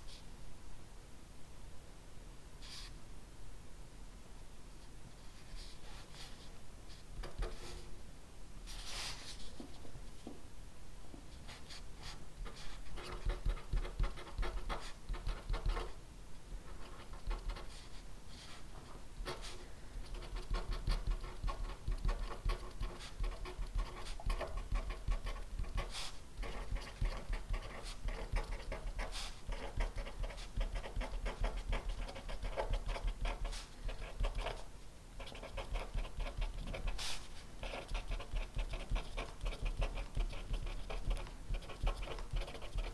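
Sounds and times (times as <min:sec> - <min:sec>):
pen scratching on paper: 0:12.4 - 0:16.0, 0:16.7 - 0:17.9, 0:18.8 - 0:42.9.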